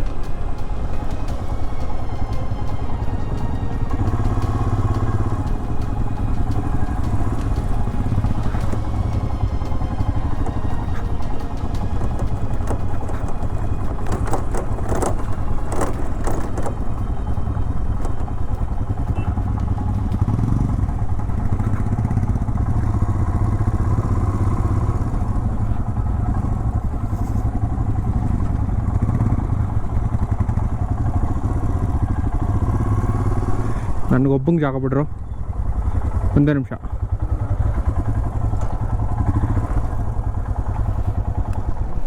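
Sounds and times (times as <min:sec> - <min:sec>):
motorcycle engine running: 0:00.0 - 0:42.0
sharp clatters and knocks: 0:06.5 - 0:20.3.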